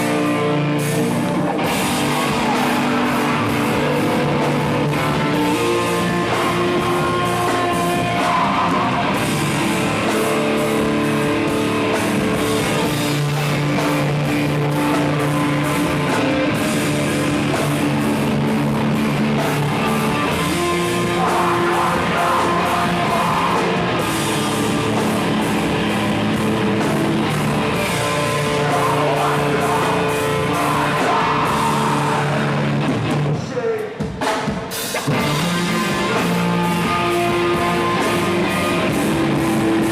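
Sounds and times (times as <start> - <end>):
person singing: 0.0 - 18.4, 19.2 - 25.0, 27.3 - 34.0
drum kit: 0.0 - 39.9
electric guitars: 0.0 - 39.9.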